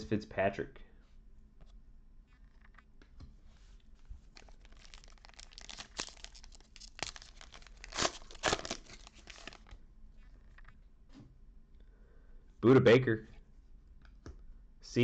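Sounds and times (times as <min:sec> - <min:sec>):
foil wrapper tearing and crinkling: 0:04.3 - 0:09.8.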